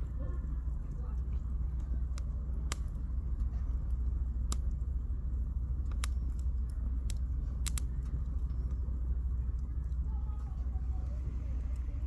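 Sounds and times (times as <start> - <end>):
low fire rumble: 0.0 - 12.0
campfire crackling and popping: 0.1 - 12.0.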